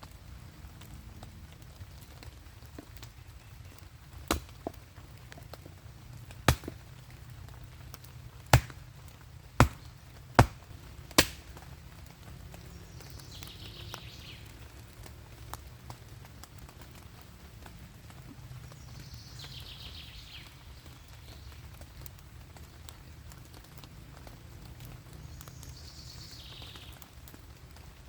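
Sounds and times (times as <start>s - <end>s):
axe chopping firewood: 4.2s - 4.8s, 6.4s - 7.1s, 8.4s - 11.6s.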